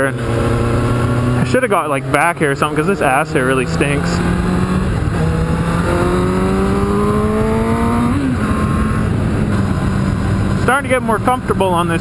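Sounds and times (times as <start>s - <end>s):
motorcycle engine accelerating: 0.0s - 12.0s
wind rushing over microphone: 2.5s - 12.0s.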